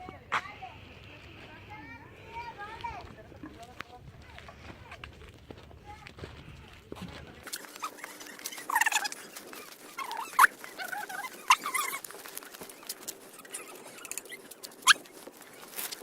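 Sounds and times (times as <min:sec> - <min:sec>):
sharp high squeaks: 0:07.5 - 0:16.0
short animal calls: 0:07.6 - 0:12.1.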